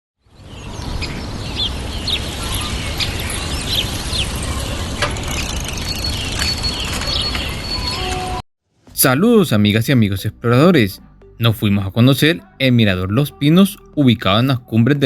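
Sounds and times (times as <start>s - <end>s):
small birds chirping: 0.3s - 8.1s.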